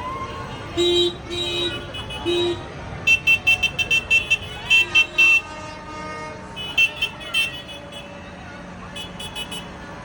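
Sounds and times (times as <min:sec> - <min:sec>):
low tractor horn blasts: 0:00.8 - 0:08.1.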